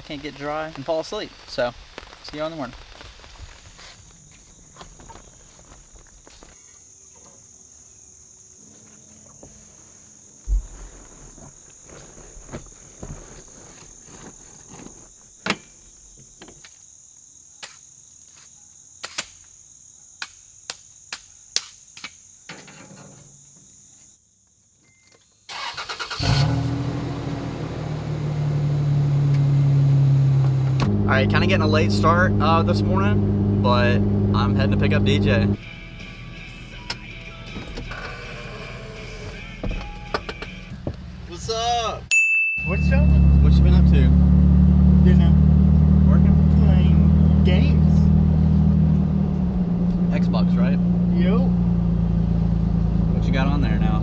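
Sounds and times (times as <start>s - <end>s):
car engine starting and running: 25.5s - 35.6s, 42.7s - 54.0s.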